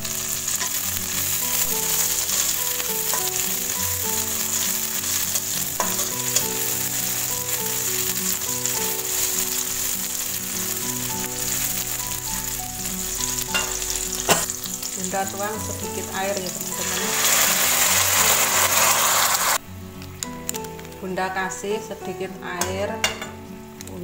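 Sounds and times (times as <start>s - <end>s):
food sizzling in hot oil: 0.0s - 19.6s, 23.0s - 23.4s
simple tune of held notes: 0.1s - 17.2s.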